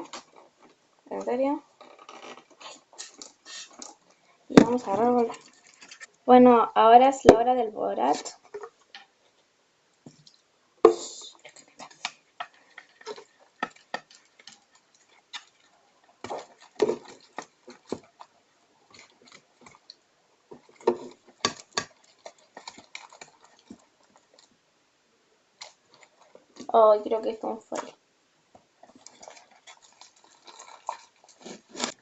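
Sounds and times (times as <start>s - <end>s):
slime being stirred: 2.6s - 6.2s, 10.2s - 20.0s, 20.6s - 24.6s, 25.6s - 26.7s, 28.6s - 32.0s.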